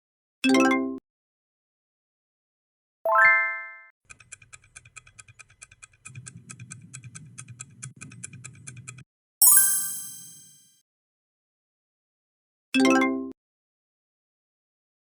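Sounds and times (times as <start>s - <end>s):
bright chime: 9.4s - 10.6s.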